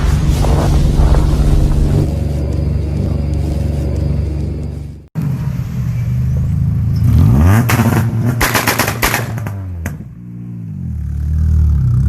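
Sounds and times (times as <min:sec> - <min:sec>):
exhaust cracks: 0:00.0 - 0:05.1, 0:06.9 - 0:10.3
car engine revving: 0:06.6 - 0:12.0.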